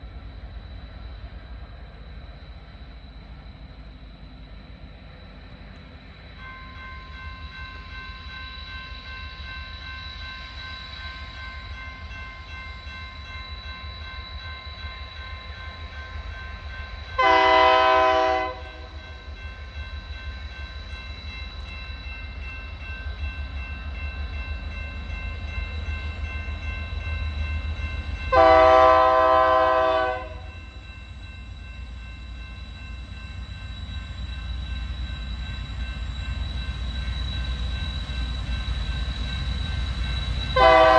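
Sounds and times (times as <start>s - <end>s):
train rumbling: 0.0s - 40.9s
locomotive air horn blasts: 17.2s - 18.9s, 28.3s - 30.5s, 40.6s - 40.9s.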